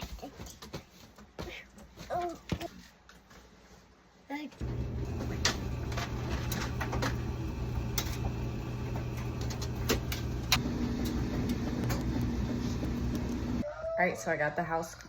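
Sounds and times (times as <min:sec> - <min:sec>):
machine humming low drone: 0:04.6 - 0:13.6.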